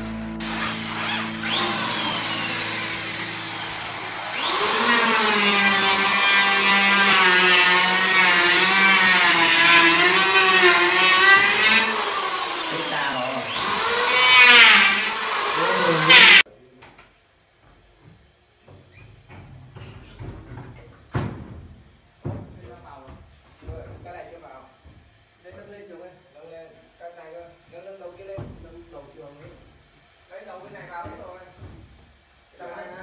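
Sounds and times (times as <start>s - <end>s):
cordless drill motor whine: 0.4s - 16.4s.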